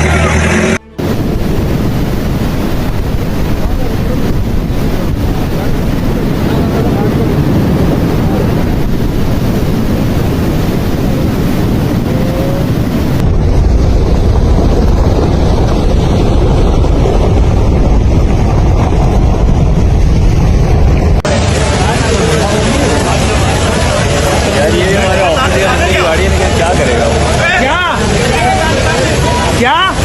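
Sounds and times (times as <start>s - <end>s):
floodwater rushing: 0.0s - 30.0s
wind buffeting microphone: 0.0s - 30.0s.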